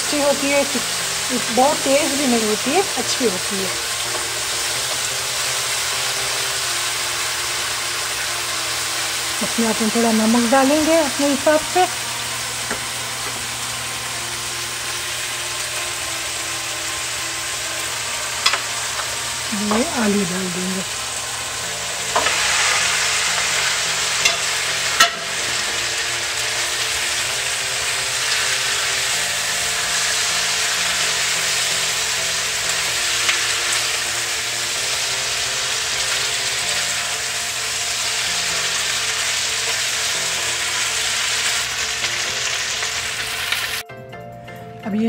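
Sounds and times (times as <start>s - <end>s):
potatoes sizzling in oil: 0.0s - 43.8s
spatula knocking against pan: 25.0s - 25.3s.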